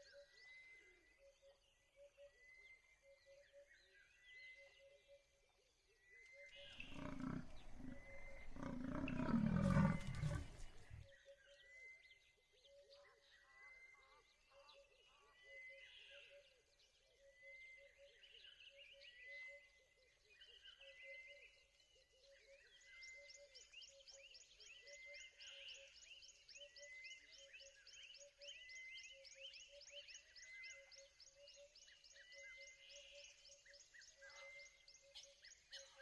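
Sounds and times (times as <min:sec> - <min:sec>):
faint chirping: 0:06.5 - 0:11.1
lion roaring: 0:06.8 - 0:11.0.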